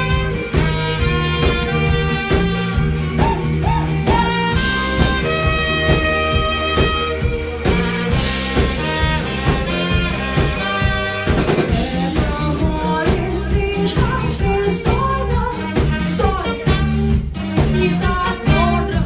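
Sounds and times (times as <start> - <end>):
drum kit beat: 0.0 - 19.0
pop band playing live: 0.0 - 19.0.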